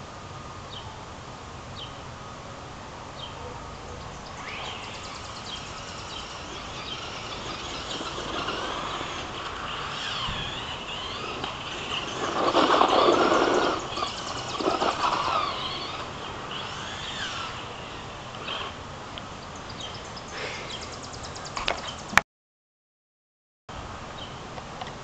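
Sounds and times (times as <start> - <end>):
bird chirps: 3.2 - 17.5, 19.4 - 22.2.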